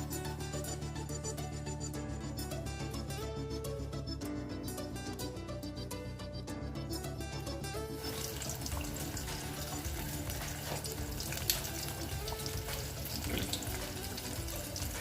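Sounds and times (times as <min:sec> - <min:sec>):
chicken sizzling in hot oil: 0:07.8 - 0:15.0.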